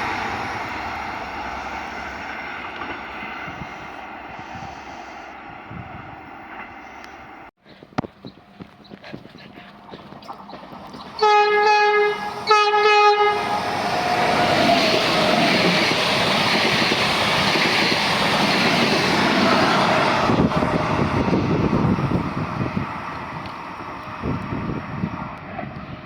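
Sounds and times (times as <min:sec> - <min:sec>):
train rushing past: 0:00.0 - 0:07.5, 0:10.3 - 0:26.0
train horn blasts: 0:11.2 - 0:13.8.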